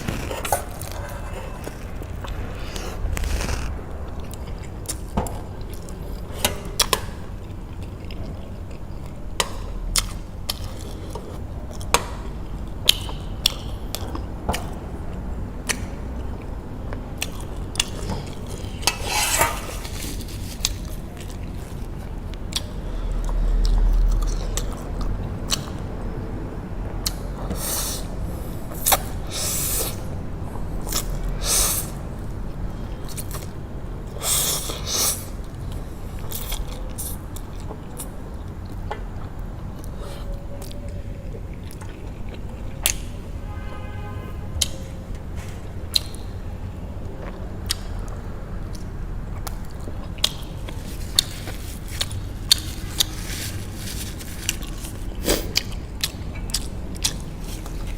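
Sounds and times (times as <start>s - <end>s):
slurping noodles: 0.0s - 3.8s
low rumble: 0.0s - 7.8s
utensils scraping a bowl: 18.8s - 20.7s
chewing: 47.2s - 57.9s.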